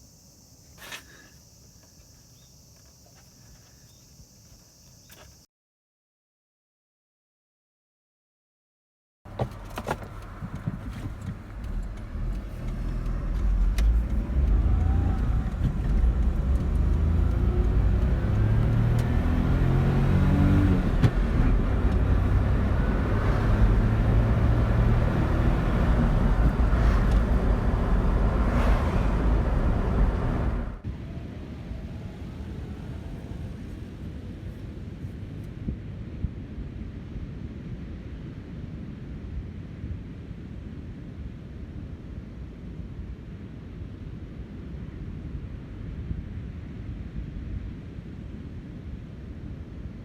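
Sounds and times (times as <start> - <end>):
car engine running while driving: 9.3 - 35.5.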